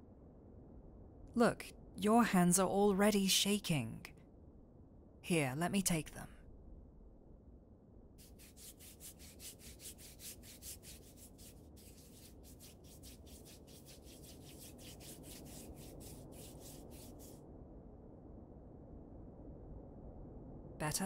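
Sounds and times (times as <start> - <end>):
hands rubbing skin: 8.2 - 17.4.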